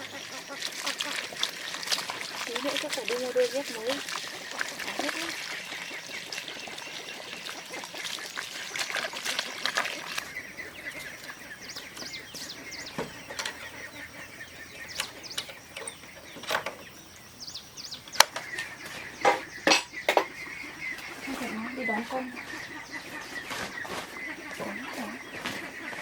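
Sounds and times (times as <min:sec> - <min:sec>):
rustling splashy noise: 0:00.0 - 0:13.1
birds chirping: 0:00.0 - 0:26.0.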